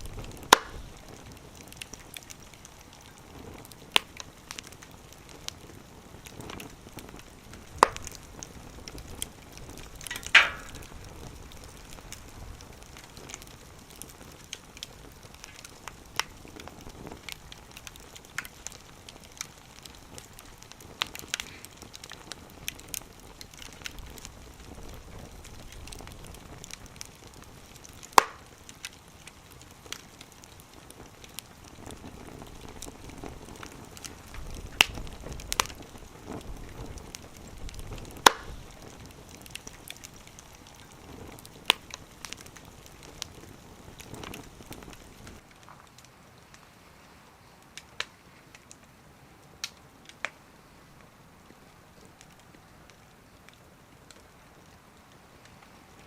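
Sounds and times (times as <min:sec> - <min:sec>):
wood fire crackling in stove: 0:00.0 - 0:56.0.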